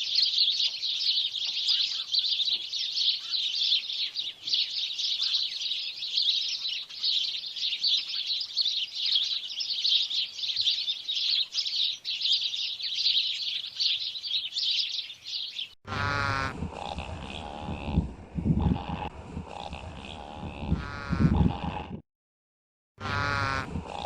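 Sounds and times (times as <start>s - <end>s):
small birds chirping: 0.0s - 21.5s
animal grunting: 15.9s - 22.0s, 23.0s - 24.0s
short pitched animal call: 15.9s - 22.0s.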